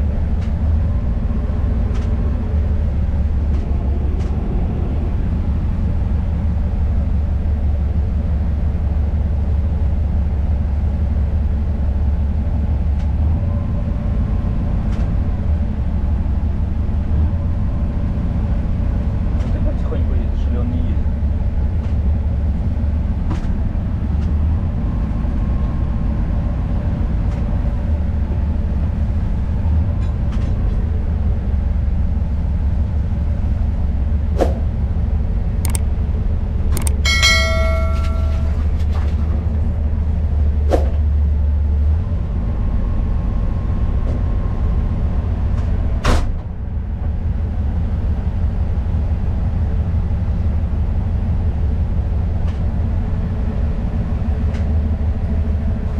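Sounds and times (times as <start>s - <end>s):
diesel locomotive rumbling: 0.0s - 55.9s
sharp metallic knocks: 36.8s - 38.8s
short high-pitched tone: 37.0s - 38.7s.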